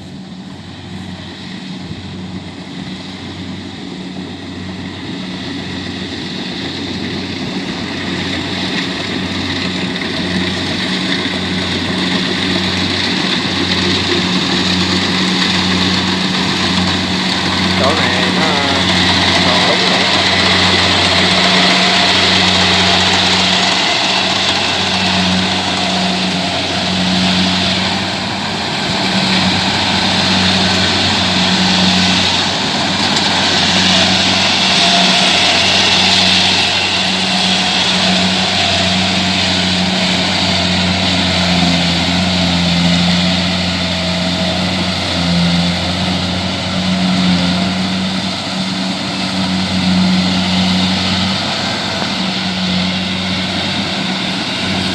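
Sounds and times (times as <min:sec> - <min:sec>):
combine harvester diesel engine: 0:00.0 - 0:54.9.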